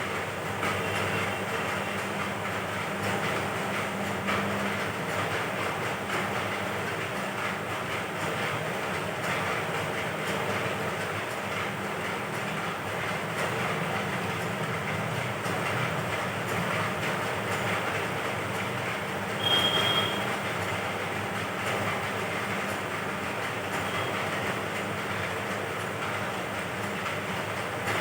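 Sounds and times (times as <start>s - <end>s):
high squeal: 19.4s - 20.3s.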